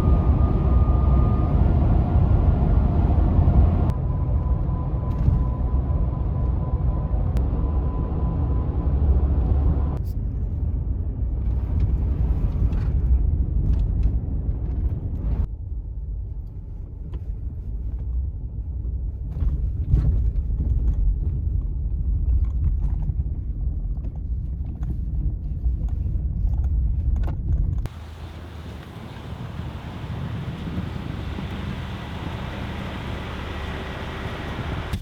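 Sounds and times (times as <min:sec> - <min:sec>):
truck engine and road noise: 0:00.0 - 0:15.5, 0:27.8 - 0:35.0
wind noise: 0:16.2 - 0:35.0.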